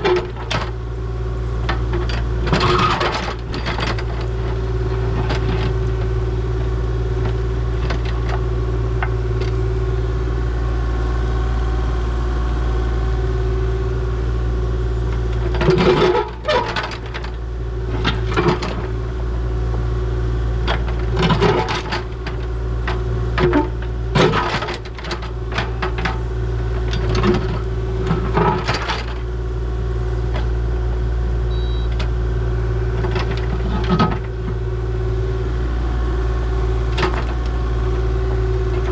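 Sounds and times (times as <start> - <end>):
diesel engine running: 0.0 - 38.9
hydraulic whine: 31.5 - 32.0.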